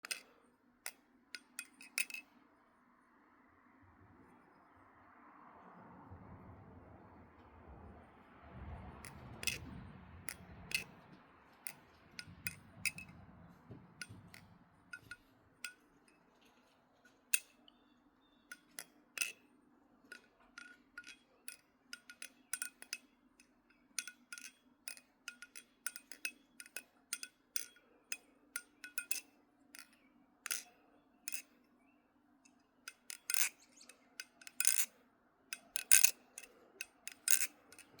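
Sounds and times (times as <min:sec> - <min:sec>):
butterfly knife flipping clicks: 0:10.3 - 0:10.9, 0:32.5 - 0:34.9, 0:35.5 - 0:38.0.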